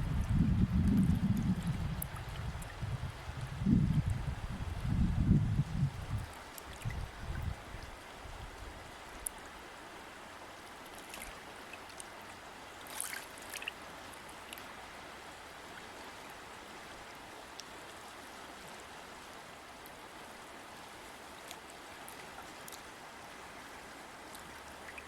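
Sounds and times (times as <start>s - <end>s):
river water flowing over rocks: 6.2s - 25.0s
water splashes: 10.7s - 16.3s.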